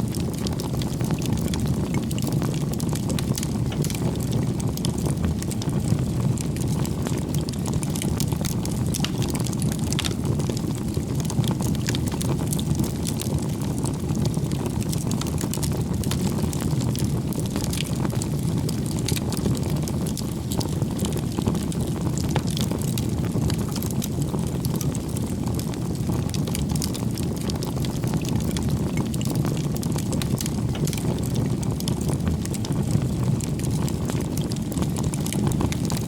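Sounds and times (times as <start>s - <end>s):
campfire flames rushing: 0.0s - 36.0s
wood crackling and popping: 0.0s - 36.0s.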